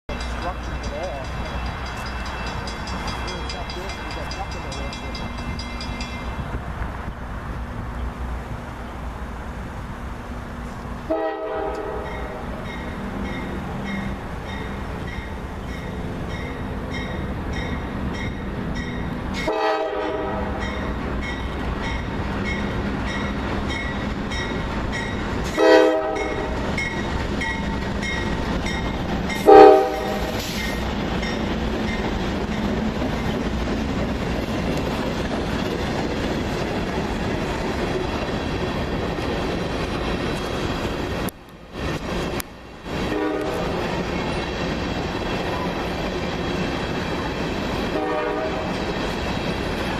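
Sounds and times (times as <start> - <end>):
bell dinging: 0.1 - 6.4
freight train passing: 0.1 - 49.9
locomotive air horn blasts: 11.1 - 12.4, 19.4 - 20.6, 25.5 - 26.6, 29.4 - 30.4, 43.1 - 43.8, 47.9 - 48.8.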